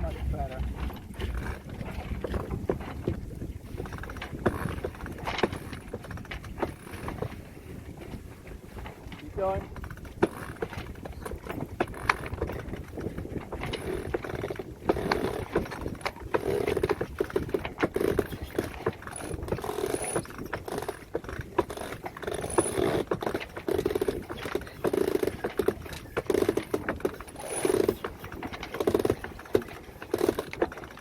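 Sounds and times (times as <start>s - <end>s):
winch grinding: 0.0s - 31.0s
winch clicking: 9.7s - 31.0s.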